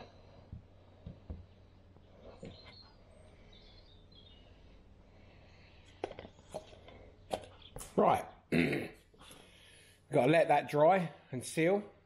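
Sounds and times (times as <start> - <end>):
faint high bird chirps: 2.2 - 4.8.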